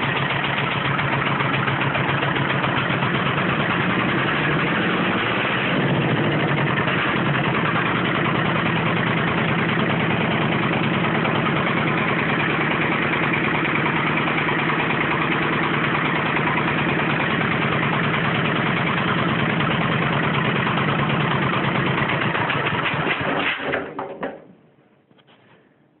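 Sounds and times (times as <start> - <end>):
tractor diesel engine running: 0.0 - 23.6.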